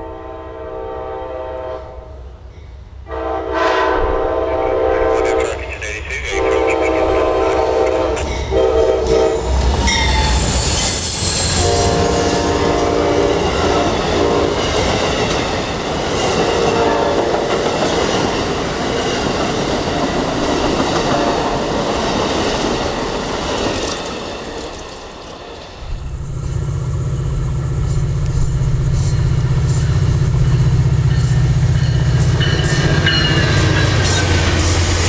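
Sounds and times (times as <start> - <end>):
train horn blasts: 0.0 - 2.3, 3.1 - 5.6, 6.2 - 9.5, 11.6 - 14.8, 16.5 - 17.3
train wheels clattering: 9.7 - 35.0
wheel squeal: 9.8 - 12.4.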